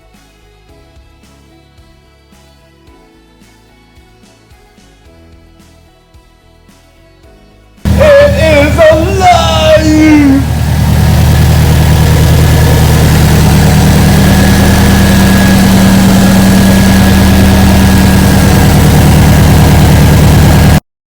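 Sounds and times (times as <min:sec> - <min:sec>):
car engine idling: 0:07.9 - 0:20.8.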